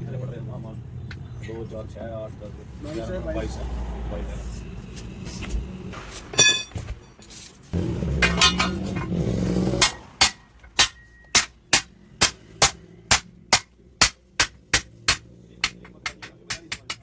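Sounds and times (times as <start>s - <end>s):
hammer striking steel ring: 6.4s - 6.8s, 8.2s - 17.0s
loud rumbling: 7.8s - 11.1s.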